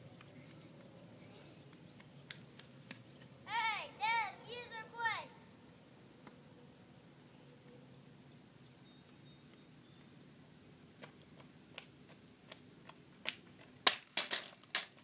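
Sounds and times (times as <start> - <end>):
cricket trilling: 4.3 - 6.8, 7.6 - 9.6.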